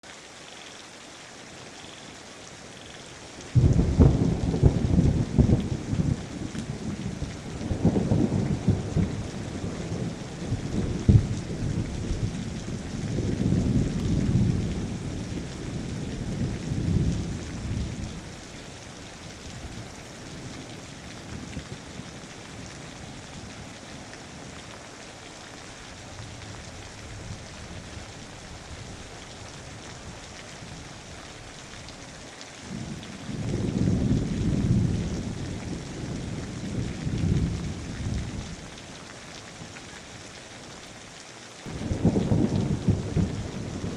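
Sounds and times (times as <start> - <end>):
steady rain: 0.0 - 43.9
thunder crack and rumble: 3.6 - 18.3, 32.6 - 38.6, 41.7 - 43.9.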